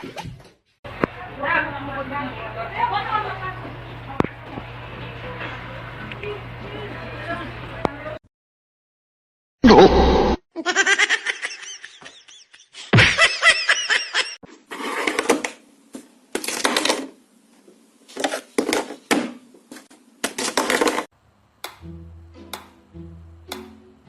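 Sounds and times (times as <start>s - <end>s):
person laughing: 10.6s - 14.4s.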